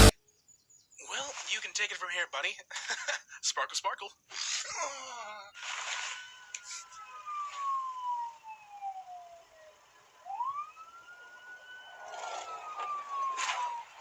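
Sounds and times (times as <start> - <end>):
wailing siren: 5.6 - 14.0.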